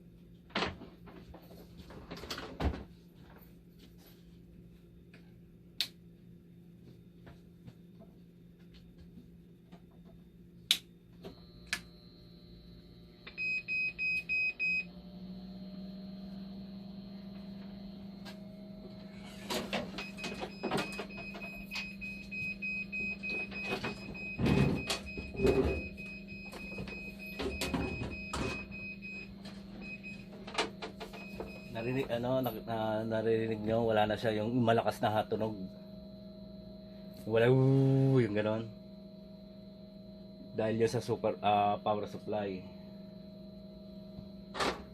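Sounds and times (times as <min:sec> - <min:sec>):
machine internal hum: 0:00.0 - 0:44.9
steady alarm beep tone: 0:11.3 - 0:14.9, 0:15.8 - 0:44.9.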